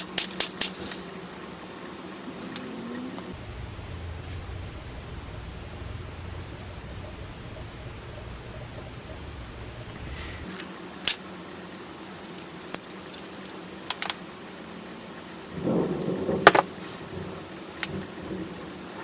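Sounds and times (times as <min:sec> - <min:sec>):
low rumble: 0:03.3 - 0:10.4.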